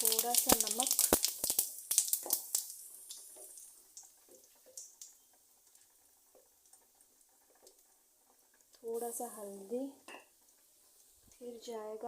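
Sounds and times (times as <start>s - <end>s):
small pops and crackles: 0.0s - 8.9s
seeds sizzling in hot oil: 0.0s - 12.0s.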